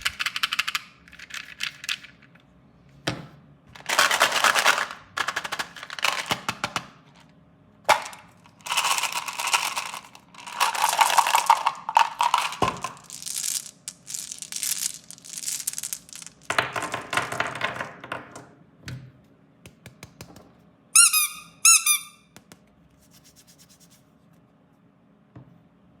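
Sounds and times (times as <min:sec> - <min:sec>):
plastic packaging crinkling: 0:08.5 - 0:16.5.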